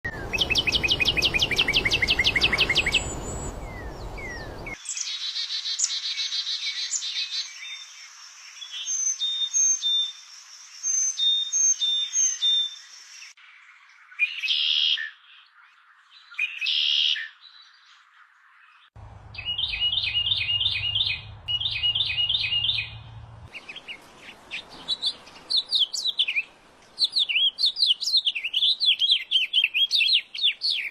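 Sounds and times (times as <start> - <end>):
birds chirping: 0.0 - 5.1, 12.2 - 30.9
bird warbling song: 0.0 - 10.2, 10.8 - 30.9
bird whistled notes: 0.1 - 4.8, 19.3 - 23.0.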